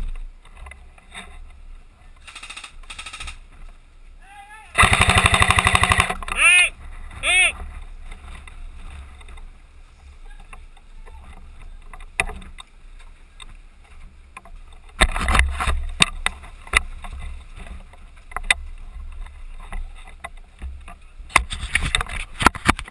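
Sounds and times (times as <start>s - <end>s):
low wind rumble: 0.0s - 22.5s
sharp clicks and knocks: 4.8s - 6.4s, 14.4s - 22.9s.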